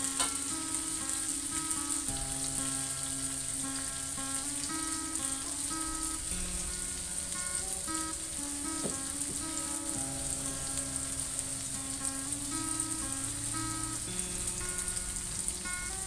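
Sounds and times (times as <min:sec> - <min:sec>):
background music: 0:00.0 - 0:16.0
spice paste sizzling in oil: 0:00.0 - 0:16.0.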